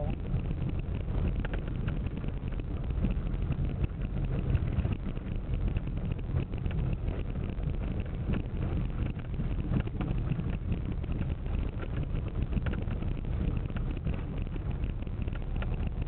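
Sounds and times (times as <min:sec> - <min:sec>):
car driving rumble: 0:00.0 - 0:16.0
faint small rattles: 0:00.0 - 0:16.0
wind buffeting microphone: 0:00.0 - 0:16.0.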